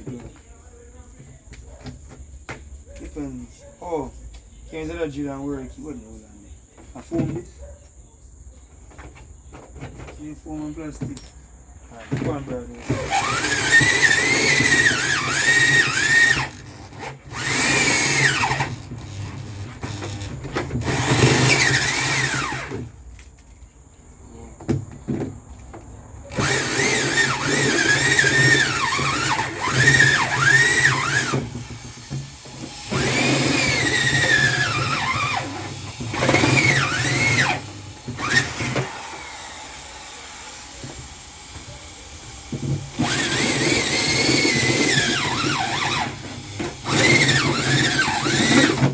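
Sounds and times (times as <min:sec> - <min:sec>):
power drill whining: 0:12.2 - 0:22.9, 0:26.3 - 0:48.9.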